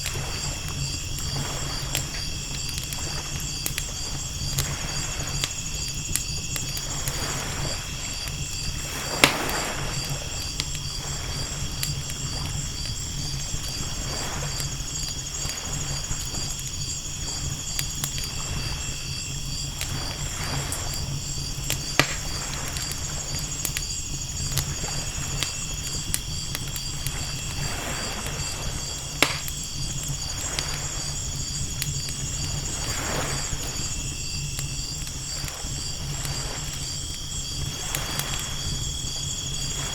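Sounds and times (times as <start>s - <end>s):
campfire crackling and popping: 0.0s - 39.9s
night insects chirping: 0.0s - 39.9s
ocean waves washing: 6.8s - 12.5s, 27.1s - 31.6s, 32.4s - 34.1s.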